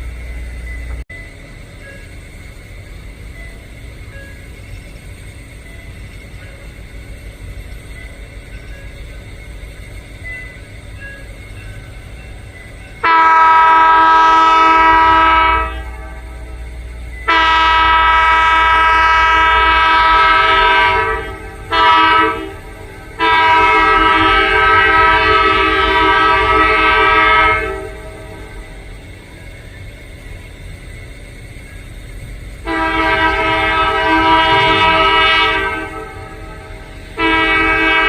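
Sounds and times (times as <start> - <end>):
locomotive air horn chord: 13.0 - 16.6, 17.2 - 28.8, 32.6 - 38.0.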